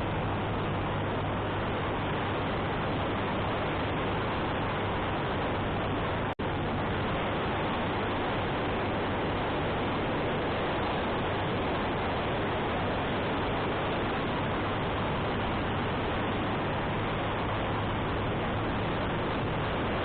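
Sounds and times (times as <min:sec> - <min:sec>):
motorcycle engine hum: 0:00.0 - 0:20.0
wind rushing over microphone: 0:00.0 - 0:20.0.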